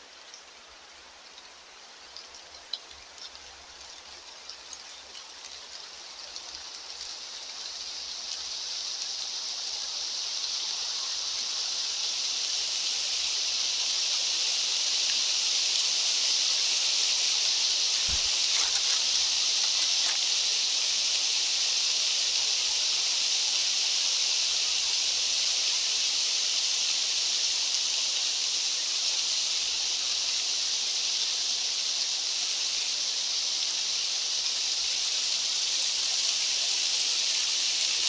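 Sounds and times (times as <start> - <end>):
faint ticks: 2.1 - 9.2, 17.9 - 20.3.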